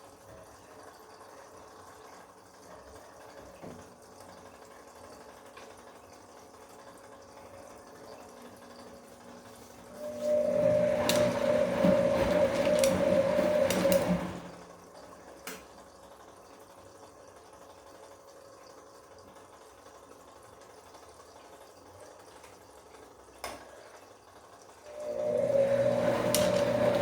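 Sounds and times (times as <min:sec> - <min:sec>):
washing machine drum motor whining: 0:08.6 - 0:15.0, 0:24.8 - 0:27.0.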